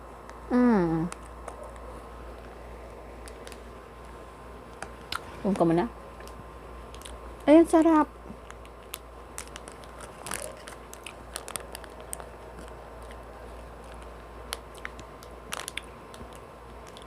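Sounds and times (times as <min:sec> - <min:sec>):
faint steady hum: 0:00.0 - 0:17.0
person chewing: 0:08.4 - 0:17.0.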